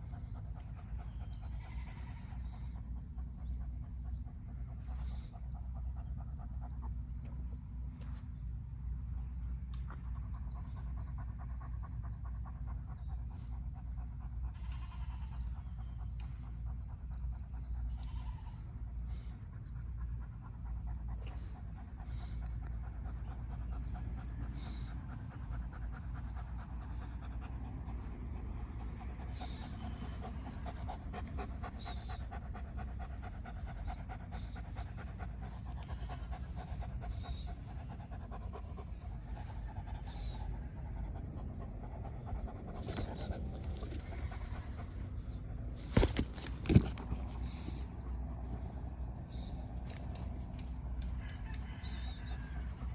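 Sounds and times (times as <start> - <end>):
steady low rumble: 0.0 - 12.2, 15.9 - 52.9
dog panting: 0.0 - 52.9.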